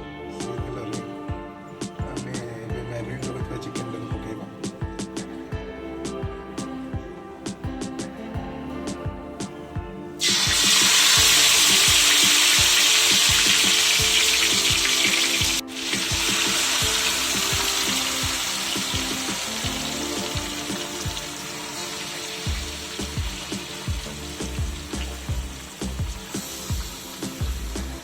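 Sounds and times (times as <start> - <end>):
chicken sizzling in hot oil: 10.2 - 28.0.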